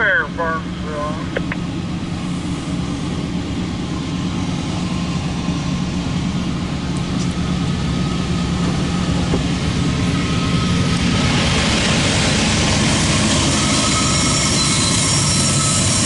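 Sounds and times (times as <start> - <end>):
diesel locomotives droning: 0.0 - 16.0.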